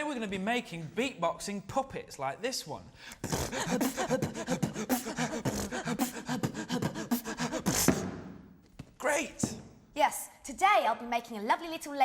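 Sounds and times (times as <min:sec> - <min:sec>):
person beatboxing: 0:03.2 - 0:08.2.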